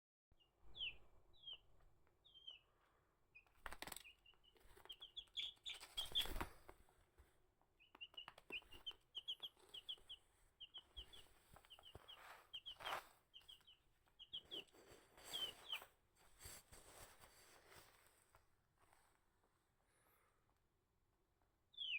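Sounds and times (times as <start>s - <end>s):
baby chick peeping: 0.7s - 6.9s, 7.8s - 17.2s, 21.6s - 21.9s.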